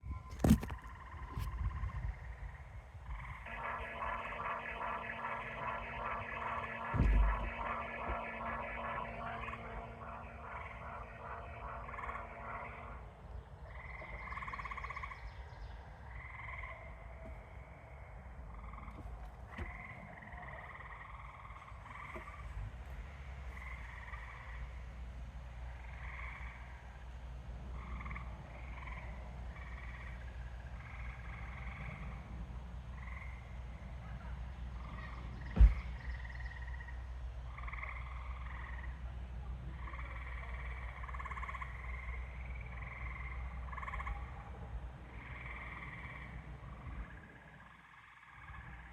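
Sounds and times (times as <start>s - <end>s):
frogs calling: 0.6s - 22.5s, 27.7s - 32.2s, 34.8s - 48.9s
sharp knock: 3.5s - 12.7s.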